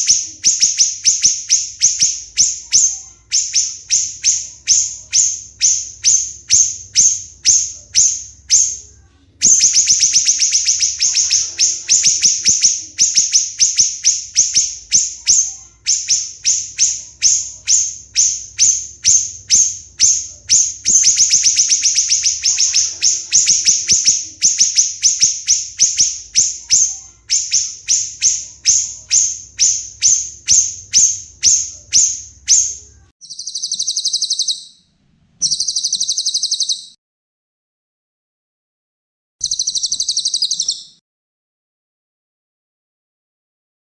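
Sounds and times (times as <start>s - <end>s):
smooth bird call: 9.4s - 34.8s, 35.4s - 37.0s, 39.4s - 41.0s
songbird chips and trills: 31.0s - 34.6s, 39.4s - 41.0s.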